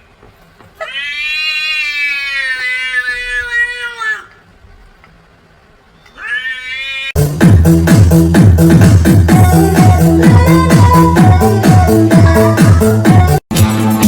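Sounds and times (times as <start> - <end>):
cat yowling: 0.8 - 4.4, 6.1 - 7.2
electronic music with a beat: 7.2 - 14.0.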